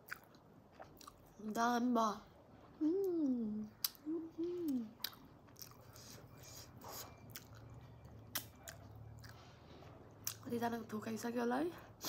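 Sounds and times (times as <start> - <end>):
soft chewing: 0.0 - 1.6, 2.6 - 10.8
person humming: 2.8 - 5.0
wet lip smacks: 8.3 - 8.8.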